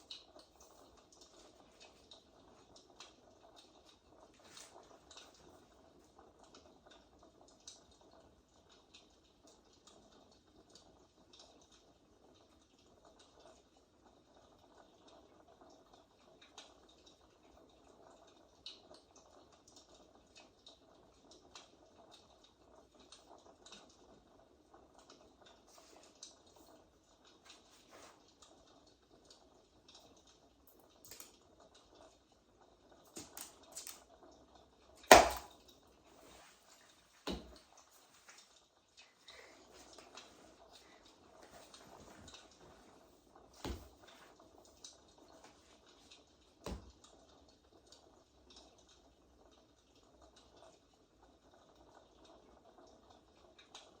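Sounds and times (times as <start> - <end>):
faint crackling ticks: 0.0 - 35.0, 37.6 - 54.0.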